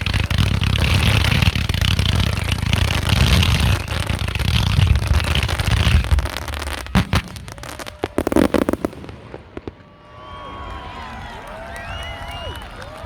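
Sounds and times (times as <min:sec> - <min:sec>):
fireworks booming and crackling: 0:00.0 - 0:11.2.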